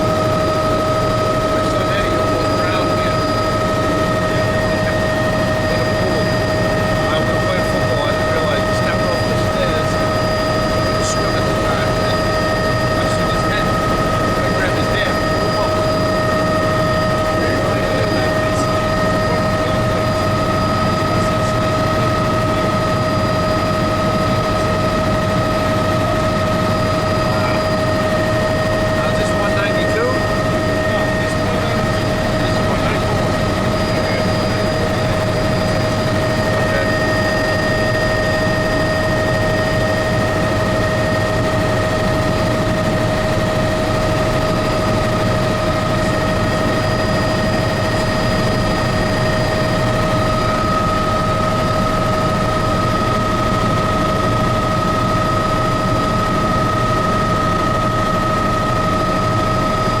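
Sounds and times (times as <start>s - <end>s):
helicopter drone and whine: 0.0s - 60.0s.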